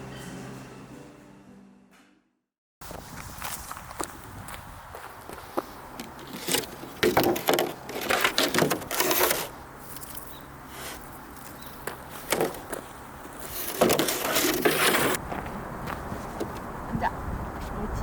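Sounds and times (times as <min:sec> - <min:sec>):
wood knocking and clattering: 0:06.0 - 0:09.5, 0:11.8 - 0:15.4.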